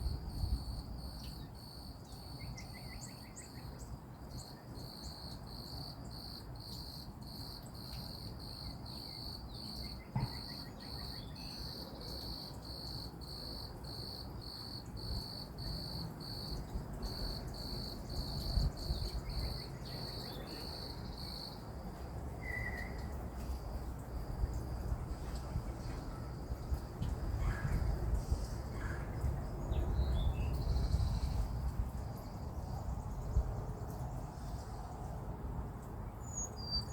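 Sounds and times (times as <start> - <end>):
cricket chirping: 0.0 - 35.0, 36.2 - 36.9
faint bird chirps: 22.4 - 23.2.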